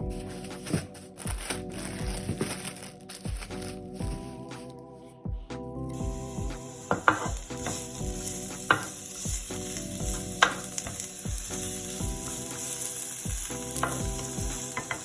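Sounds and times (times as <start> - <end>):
background music with steady beat: 0.0 - 15.0
food sizzling in a pan: 6.0 - 15.0
utensil clicking against pan: 10.4 - 11.1.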